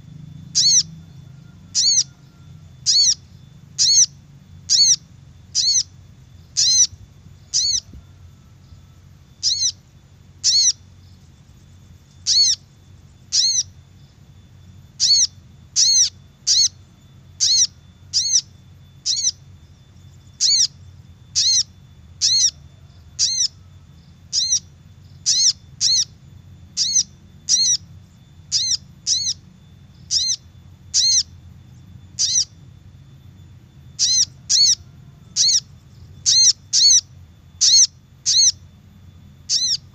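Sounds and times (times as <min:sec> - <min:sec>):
faint low hum: 0:00.0 - 0:39.9
sharp high bird call notes: 0:06.5 - 0:09.8, 0:10.4 - 0:10.9, 0:12.2 - 0:13.8, 0:28.5 - 0:31.3, 0:32.2 - 0:32.6, 0:34.0 - 0:38.6, 0:39.5 - 0:39.9.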